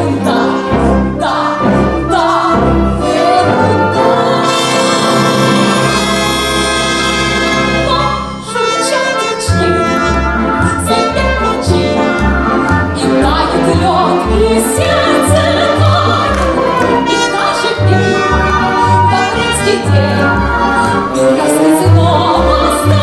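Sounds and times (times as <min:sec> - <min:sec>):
orchestra playing: 0:00.0 - 0:23.0
woman singing operetta: 0:13.0 - 0:23.0.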